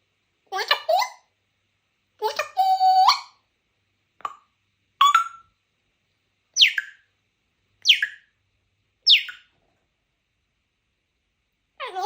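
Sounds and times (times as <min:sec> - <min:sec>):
parrot whistling: 0:05.0 - 0:05.5, 0:06.6 - 0:07.0, 0:07.8 - 0:08.3, 0:09.0 - 0:09.5.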